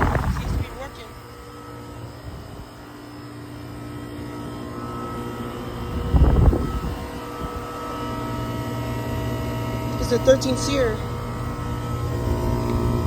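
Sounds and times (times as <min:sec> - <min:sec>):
air conditioner unit hum: 0:00.0 - 0:13.0.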